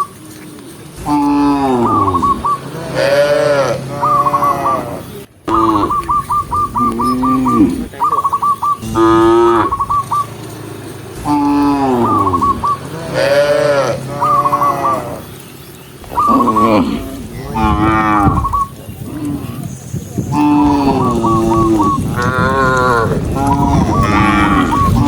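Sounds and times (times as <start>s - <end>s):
cattle mooing: 1.0s - 8.0s, 8.8s - 15.4s, 16.0s - 25.0s
rapid high chirps: 5.5s - 22.2s.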